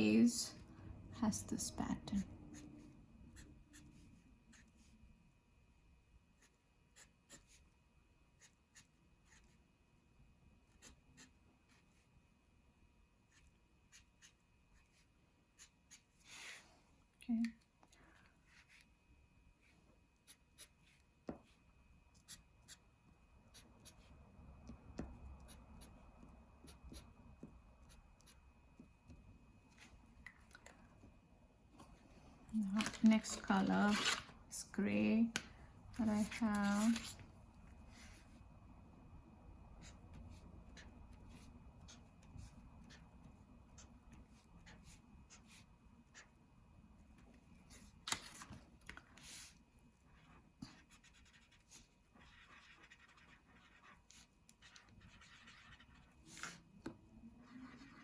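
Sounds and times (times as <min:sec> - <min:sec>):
marker pen scratching on paper: 0:06.3 - 0:09.6, 0:10.6 - 0:12.1, 0:13.3 - 0:16.6, 0:20.2 - 0:29.9, 0:33.3 - 0:34.2, 0:36.0 - 0:37.2, 0:39.8 - 0:46.4, 0:49.0 - 0:58.0.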